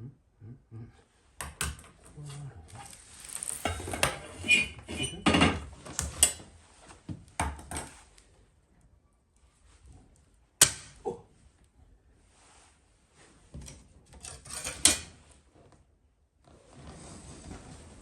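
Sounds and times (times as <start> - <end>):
knocks and clatters of handling: 1.4 - 8.0.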